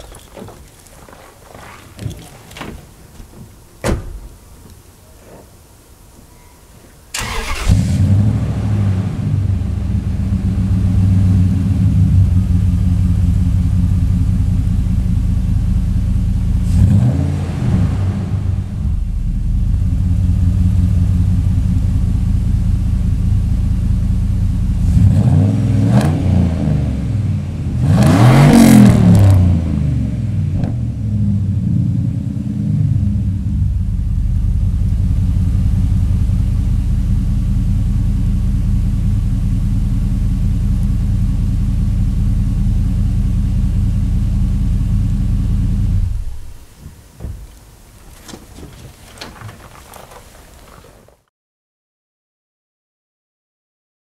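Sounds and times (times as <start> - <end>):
engine cranking: 0.0 - 3.4, 7.1 - 8.0, 47.4 - 51.2
engine idling and revving: 7.2 - 46.7.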